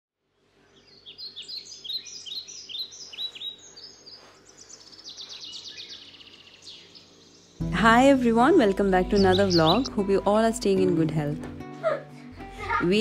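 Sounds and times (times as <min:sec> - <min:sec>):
birds chirping and calling: 0:00.7 - 0:07.7, 0:08.7 - 0:10.3
rapid bird trill: 0:09.2 - 0:10.0.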